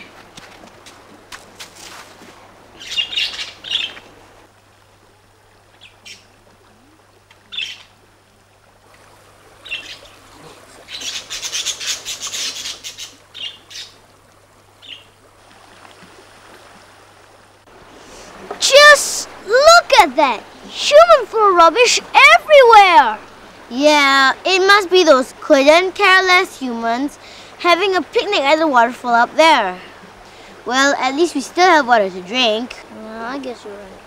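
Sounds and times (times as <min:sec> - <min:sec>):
birds calling: 0:02.7 - 0:04.2, 0:05.7 - 0:06.4, 0:07.4 - 0:08.0, 0:09.6 - 0:14.1, 0:14.7 - 0:15.2.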